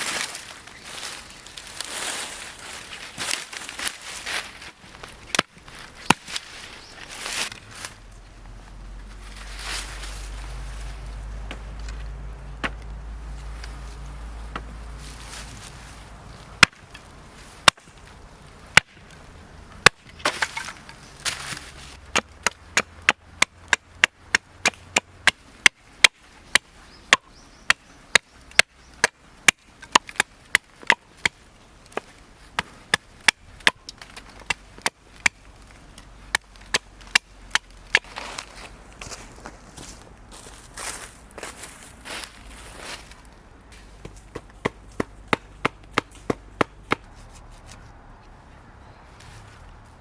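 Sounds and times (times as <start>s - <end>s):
blade chopping wood: 5.3s - 6.5s, 12.6s - 12.9s, 16.6s - 18.0s, 18.7s - 19.1s, 19.8s - 38.5s, 44.0s - 47.1s.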